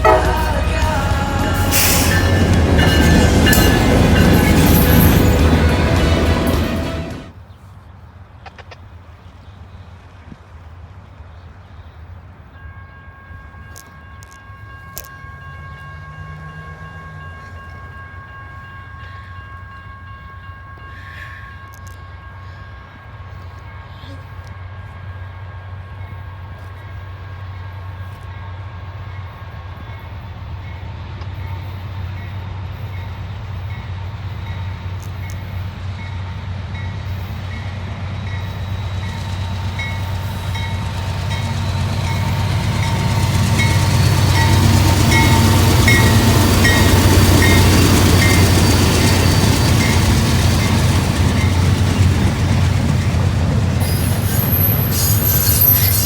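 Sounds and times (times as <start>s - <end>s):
short high tone: 0.0s - 7.3s
locomotive engine drone: 0.0s - 7.4s, 14.2s - 20.9s, 24.4s - 56.0s
rolling train cars rumble: 0.0s - 7.5s, 12.2s - 56.0s.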